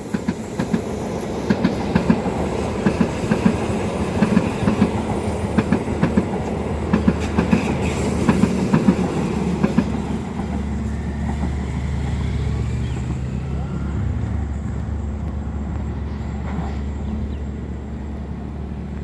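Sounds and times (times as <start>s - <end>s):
train wheels clicking over rail joints: 0.0s - 13.3s.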